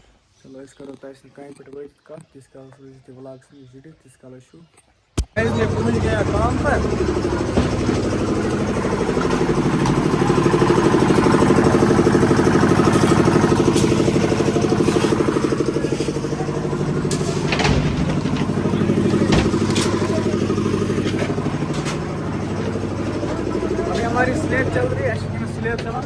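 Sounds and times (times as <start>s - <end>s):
engine running with pulsing beat: 5.2s - 26.0s
sharp clanks and knocks: 5.2s - 26.0s.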